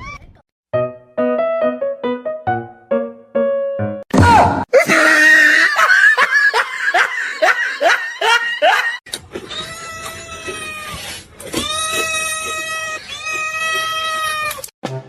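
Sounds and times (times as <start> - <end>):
person laughing loudly: 4.7 - 9.0.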